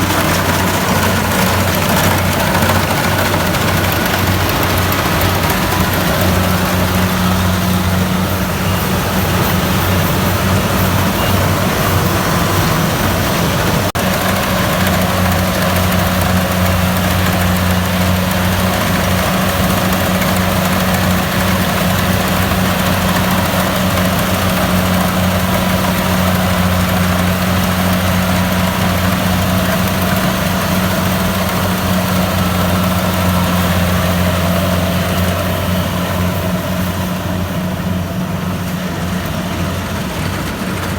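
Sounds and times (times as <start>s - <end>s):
diesel engine humming: 0.0s - 40.9s.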